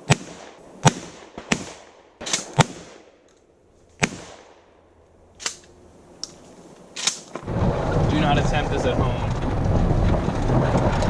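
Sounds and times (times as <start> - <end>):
shotgun shots echoing: 0.0 - 3.3, 4.0 - 5.6.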